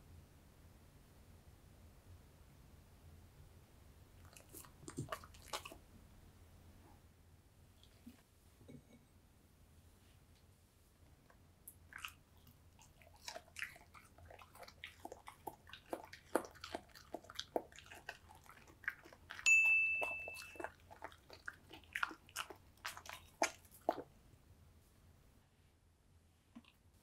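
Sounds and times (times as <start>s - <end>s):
dog chewing food: 4.2s - 5.8s, 11.7s - 24.1s
short high ding: 19.5s - 20.5s.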